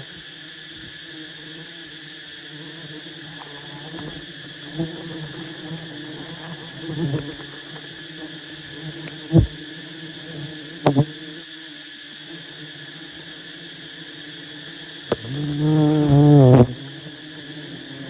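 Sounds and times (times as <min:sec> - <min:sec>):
honey bees buzzing: 0:00.0 - 0:11.6, 0:12.3 - 0:18.0
dull thumps or knocks: 0:09.4 - 0:09.6.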